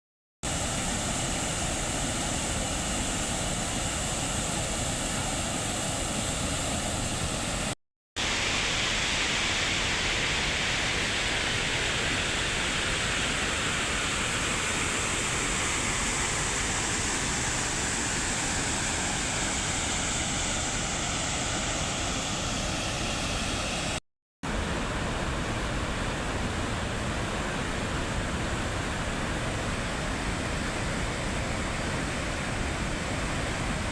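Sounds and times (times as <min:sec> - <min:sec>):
waterfall rushing: 0:00.5 - 0:33.9.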